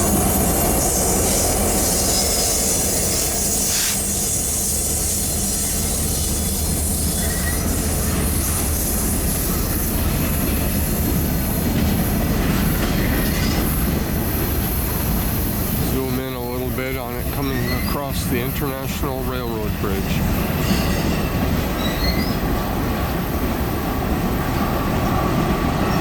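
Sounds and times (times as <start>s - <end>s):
freight train rumbling past: 0.0s - 26.0s
faint wheel squeals: 1.3s - 10.0s, 17.4s - 18.1s, 20.4s - 22.4s.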